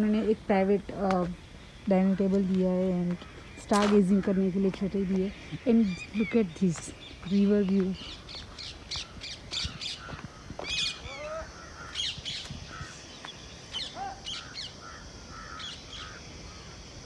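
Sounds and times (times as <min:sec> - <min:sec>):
birds chirping: 0:00.0 - 0:17.0
birds whistling sliding calls: 0:11.8 - 0:14.7.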